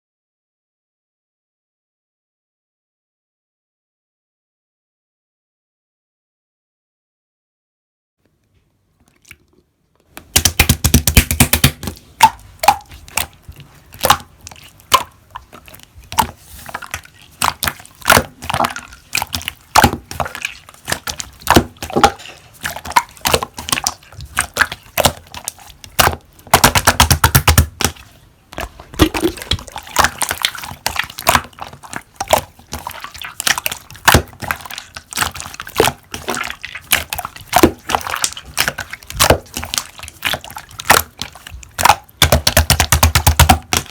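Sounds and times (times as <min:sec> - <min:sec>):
slime clicking and popping: 0:10.2 - 0:13.4, 0:20.9 - 0:28.0, 0:33.4 - 0:43.9.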